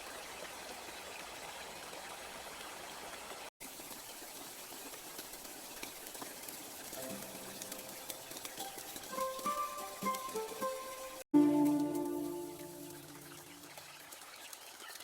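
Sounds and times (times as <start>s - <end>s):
heavy rain hissing: 6.9s - 13.6s.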